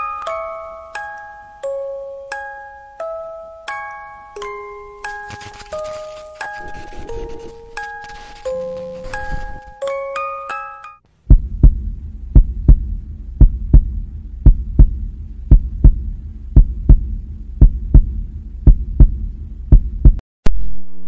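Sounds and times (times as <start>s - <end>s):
heartbeat thumps: 11.2s - 20.2s
steady low hum: 11.2s - 21.0s.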